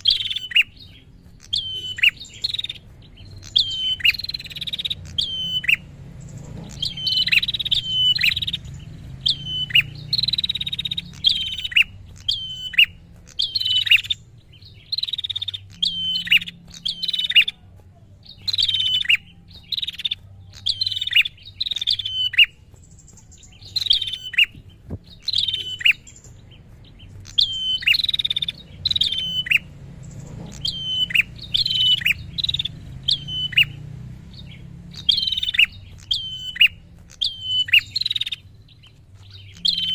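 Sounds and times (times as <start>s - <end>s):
bird sharp descending chirps: 3.4s - 17.5s.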